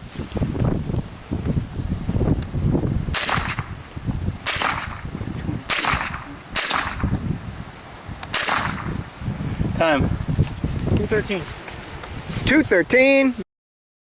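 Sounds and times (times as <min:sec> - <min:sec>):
rifle shots: 0:03.1 - 0:03.7, 0:04.4 - 0:07.2, 0:08.3 - 0:09.0.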